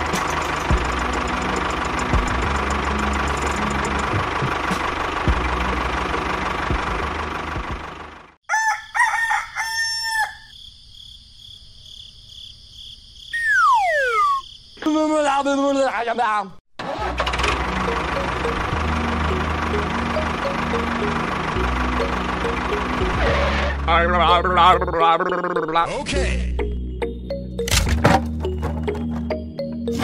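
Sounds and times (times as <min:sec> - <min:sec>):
small engine rattling: 0:00.0 - 0:08.4, 0:16.8 - 0:23.8
rooster crowing: 0:08.4 - 0:10.6.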